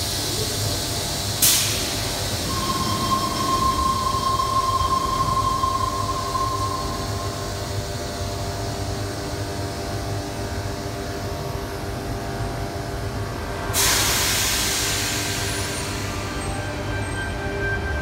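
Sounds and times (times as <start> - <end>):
electric train hum and rumble: 0.0 - 18.0
air brakes hissing: 0.1 - 8.4, 13.7 - 16.6.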